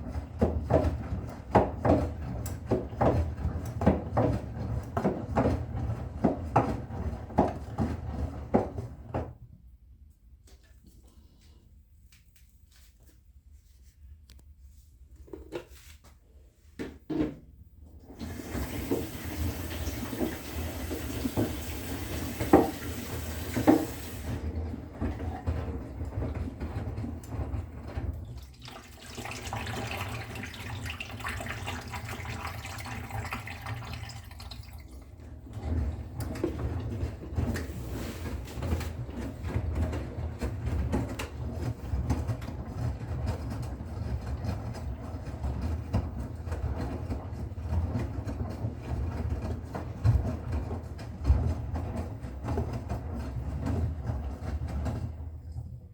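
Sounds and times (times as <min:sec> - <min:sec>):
washing machine drum rumbling: 0:00.0 - 0:09.4, 0:17.8 - 0:55.9
water hissing into washing machine: 0:18.0 - 0:39.1.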